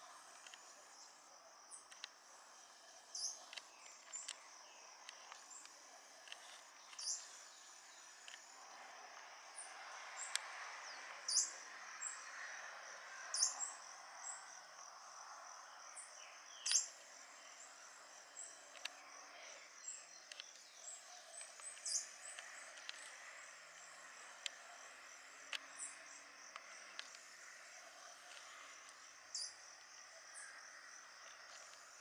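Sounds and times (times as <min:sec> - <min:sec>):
insect trill: 0:00.0 - 0:32.0
birds chirping: 0:16.2 - 0:23.2.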